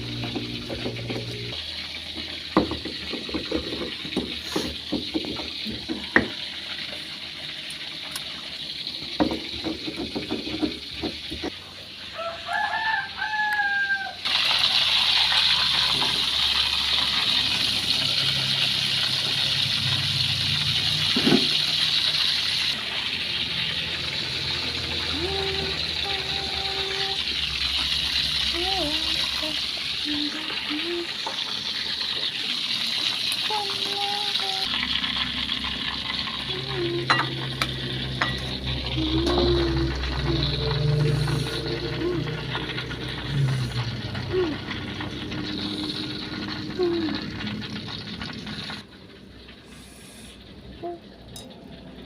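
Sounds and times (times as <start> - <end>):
rooster crowing: 12.1 - 14.3.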